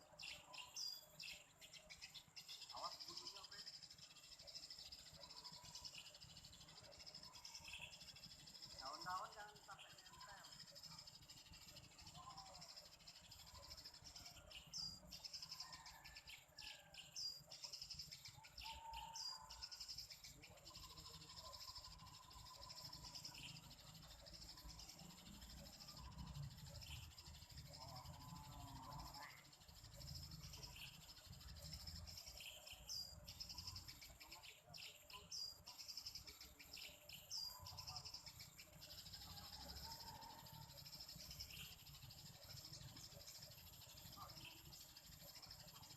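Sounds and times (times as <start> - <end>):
birds chirping faintly: 0.0 - 45.9
steady insect hum: 0.0 - 45.9.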